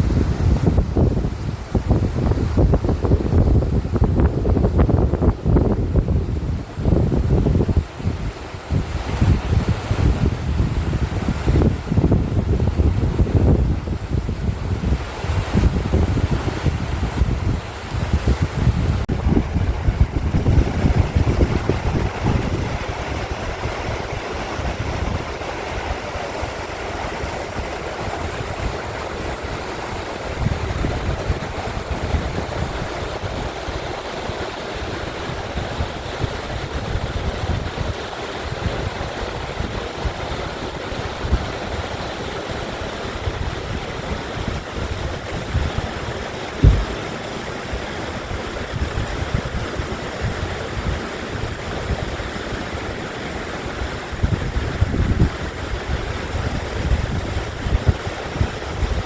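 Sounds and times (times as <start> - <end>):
stream running: 0.0 - 59.0
wind rumbling on microphone: 0.0 - 59.0
brief thump: 46.6 - 47.1.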